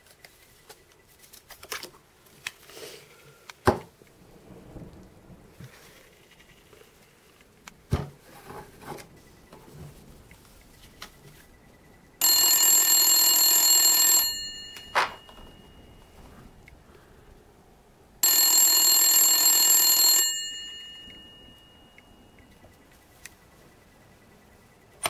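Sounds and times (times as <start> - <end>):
telephone ringing: 10.7 - 16.5, 18.2 - 25.0.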